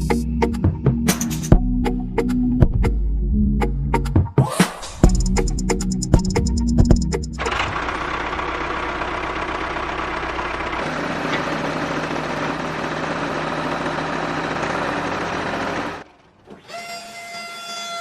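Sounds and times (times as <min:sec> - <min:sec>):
small tractor motor running: 0:07.4 - 0:18.0.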